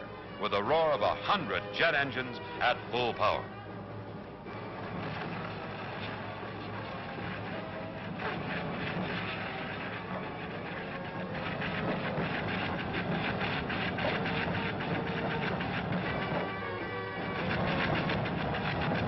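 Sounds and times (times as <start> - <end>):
dense crackling: 4.8 - 16.6.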